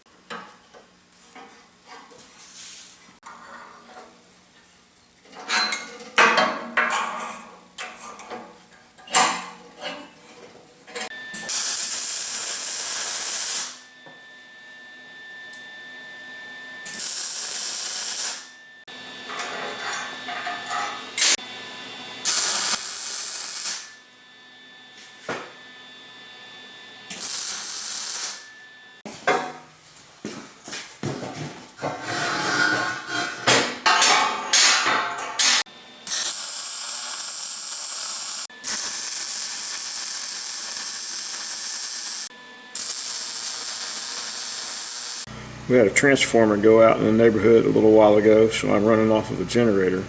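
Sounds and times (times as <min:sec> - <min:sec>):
welding crackle: 0:11.5 - 0:13.8, 0:16.9 - 0:18.5, 0:22.3 - 0:23.9, 0:27.1 - 0:28.4, 0:36.1 - 0:45.3
metal clanks and knocks: 0:31.2 - 0:35.6.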